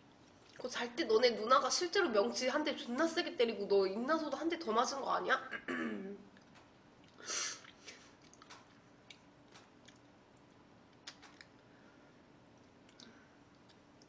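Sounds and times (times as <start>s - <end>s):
faint steady hum: 0.0s - 14.0s
small clicks and ticks: 8.2s - 11.6s.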